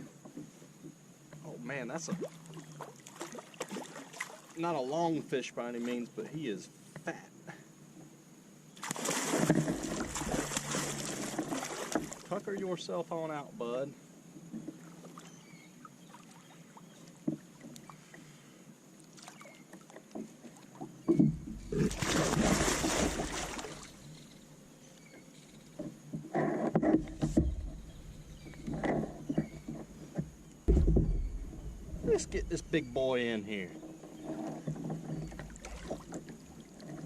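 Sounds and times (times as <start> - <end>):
water splashing against kayak: 1.9 - 4.7, 8.8 - 12.7, 19.0 - 24.1, 26.7 - 33.5, 34.1 - 37.0
fish thrashing in water: 8.8 - 12.3, 21.5 - 24.0, 35.2 - 36.7.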